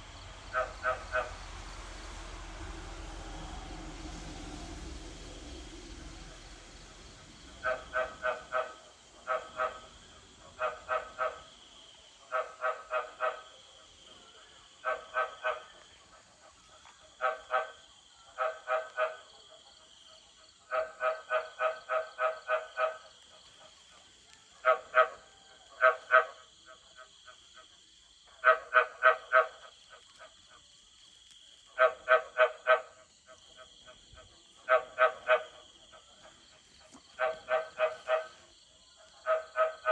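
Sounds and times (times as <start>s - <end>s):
frogs croaking: 0.0s - 39.9s.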